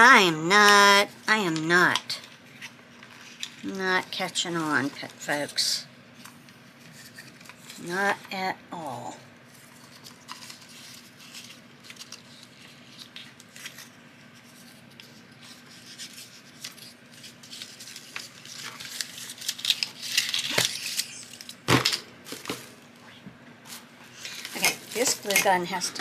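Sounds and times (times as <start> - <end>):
paper rustling and crinkling: 2.2 - 3.7, 9.5 - 21.6, 23.7 - 26.0.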